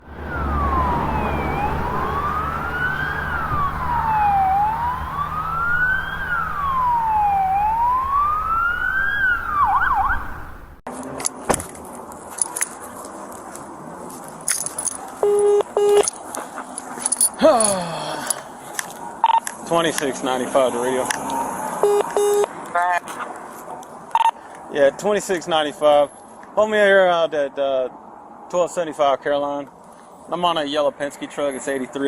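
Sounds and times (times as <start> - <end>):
police siren wailing: 0.0 - 10.8, 21.2 - 22.5.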